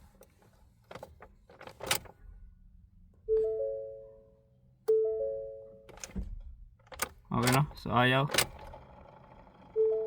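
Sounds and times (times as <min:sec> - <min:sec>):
dashboard warning chime: 0:03.3 - 0:05.9, 0:09.8 - 0:10.0.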